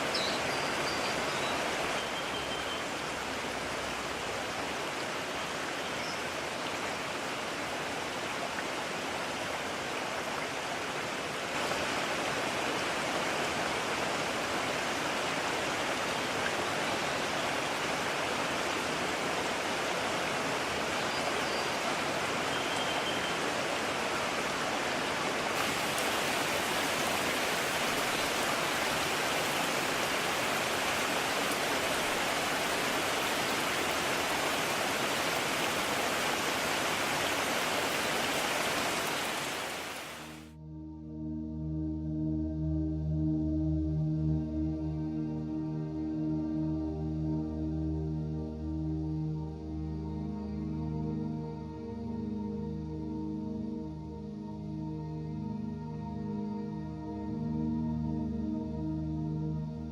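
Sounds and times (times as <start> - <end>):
stream rushing over rocks: 0.0 - 40.5.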